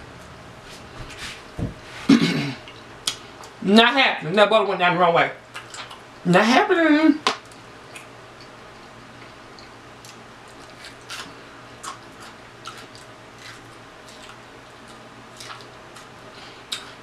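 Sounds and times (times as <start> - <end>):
faint steady hum: 0.0 - 17.0
wet chewing and lip smacks: 5.5 - 6.0, 7.4 - 8.5, 9.2 - 16.1.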